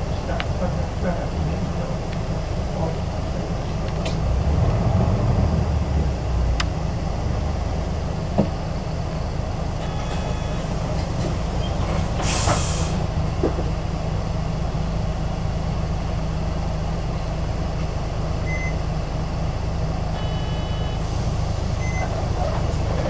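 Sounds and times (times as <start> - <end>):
bus diesel engine running: 0.0 - 23.0
air hiss from bus brakes: 9.8 - 13.1, 20.8 - 21.8
short electronic beeps: 18.4 - 18.8, 20.2 - 21.1, 21.8 - 22.1.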